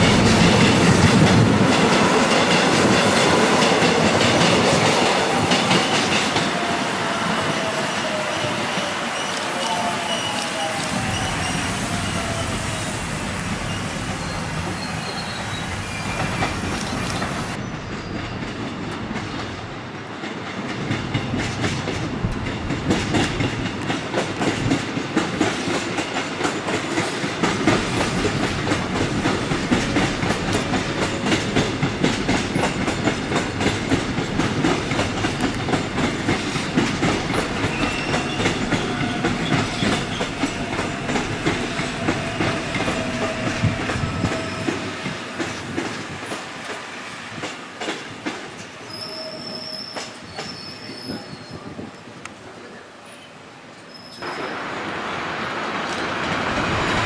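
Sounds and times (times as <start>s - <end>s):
train rumble: 0.0s - 52.7s, 54.2s - 57.0s
wheel squeals: 8.0s - 12.8s, 13.4s - 18.4s, 37.6s - 45.0s, 48.8s - 51.7s, 53.2s - 54.5s.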